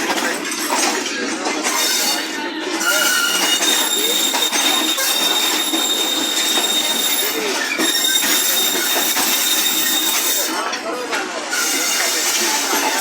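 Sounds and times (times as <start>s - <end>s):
moving train noise: 0.0s - 13.0s
train wheels squealing on rails: 0.0s - 13.0s.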